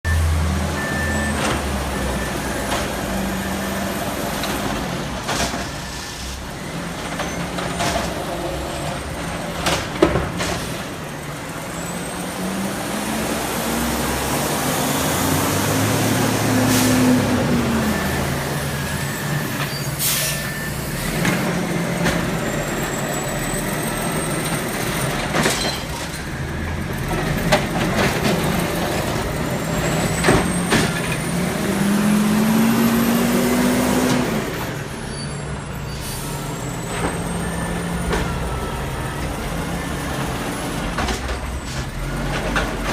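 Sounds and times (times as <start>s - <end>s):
diesel truck engine revving: 0.1s - 5.8s, 6.4s - 42.9s
air brake hisses: 19.8s - 20.6s.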